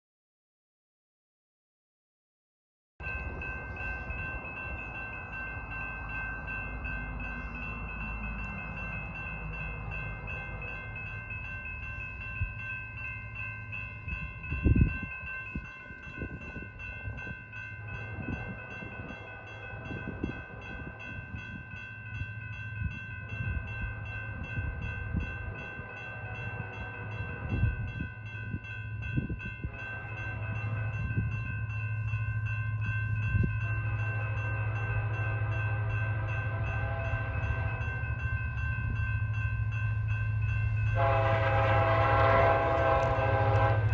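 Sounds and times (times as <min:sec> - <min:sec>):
diesel locomotive hum: 0:03.0 - 0:43.9.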